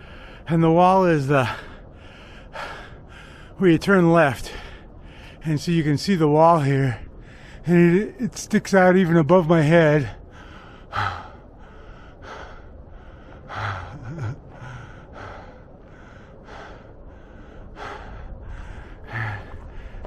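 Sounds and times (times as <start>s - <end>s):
man breathing hard: 0.0s - 0.5s, 1.3s - 3.6s, 4.4s - 5.4s, 7.0s - 7.7s, 10.1s - 20.0s.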